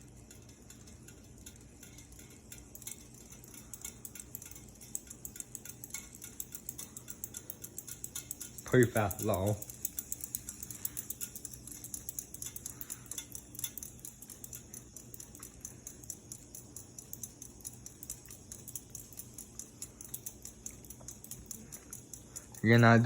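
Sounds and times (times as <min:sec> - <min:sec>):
ceiling fan motor hum: 0:00.0 - 0:23.0
fast steady ticking: 0:00.0 - 0:23.0.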